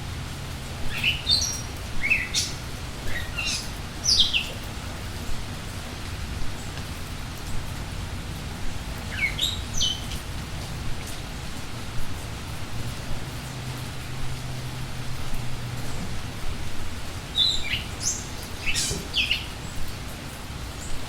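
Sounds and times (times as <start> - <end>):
steady rainfall: 0.0 - 21.0
birds chirping: 0.8 - 5.2, 9.0 - 10.3, 14.4 - 21.0.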